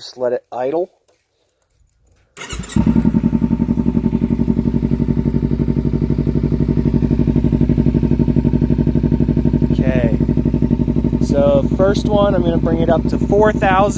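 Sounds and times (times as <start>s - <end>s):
motorcycle starter cranking: 2.1s - 3.5s
motorcycle engine idling: 2.4s - 13.9s.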